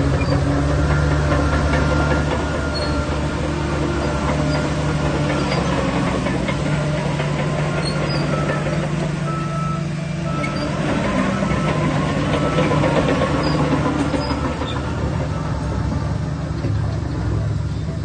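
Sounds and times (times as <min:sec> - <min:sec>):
diesel machinery engine: 0:00.0 - 0:18.0
high squeaks: 0:00.1 - 0:06.2, 0:07.6 - 0:08.8, 0:12.4 - 0:15.7.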